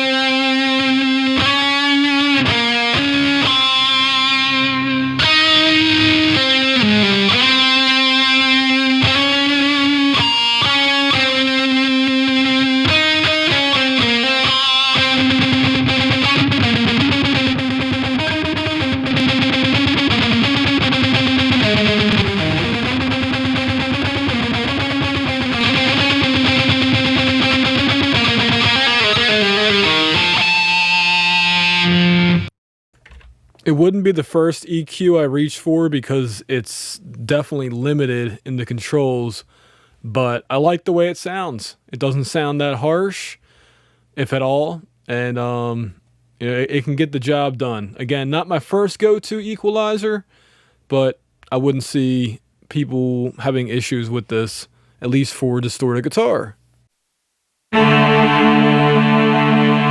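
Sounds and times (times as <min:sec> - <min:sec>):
distorted electric guitar melody: 0:00.0 - 0:32.5, 0:57.7 - 0:59.9.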